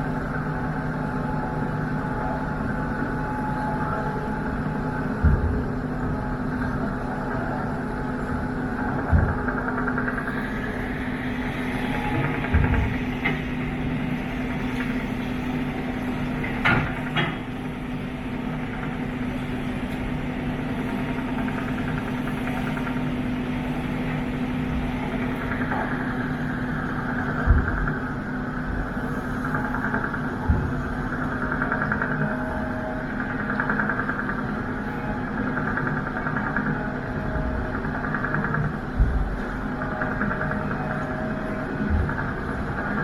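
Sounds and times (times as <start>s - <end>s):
boat engine running: 0.0s - 43.0s.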